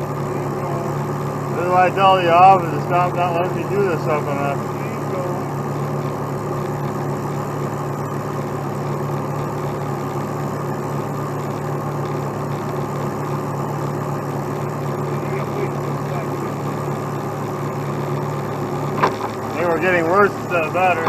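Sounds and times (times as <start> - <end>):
truck diesel engine running: 0.0 - 21.0.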